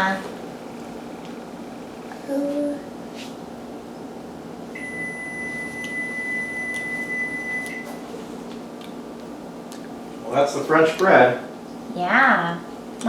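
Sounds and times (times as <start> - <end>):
long electronic beep: 4.8 - 8.0.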